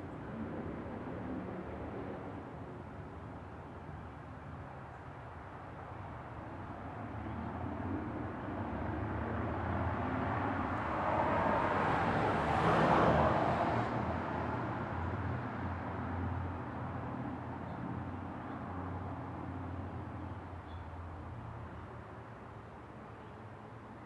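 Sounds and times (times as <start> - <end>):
car passing by: 10.3 - 15.2.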